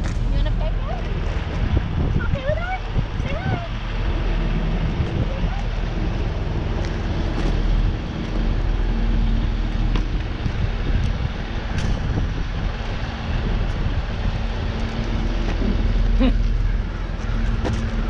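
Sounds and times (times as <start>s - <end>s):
diesel train idling hum: 0.0s - 18.0s
wind on microphone: 0.0s - 18.0s.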